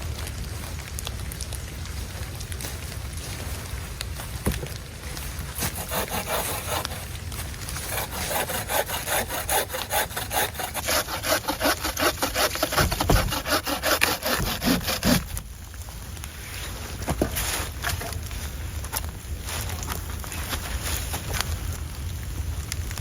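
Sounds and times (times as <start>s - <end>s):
hand saw cutting wood: 5.6s - 7.1s, 7.7s - 15.4s.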